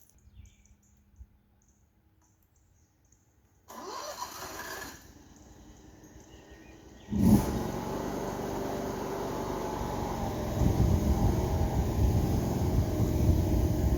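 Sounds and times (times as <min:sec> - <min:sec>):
skid steer engine running: 0:03.7 - 0:13.9.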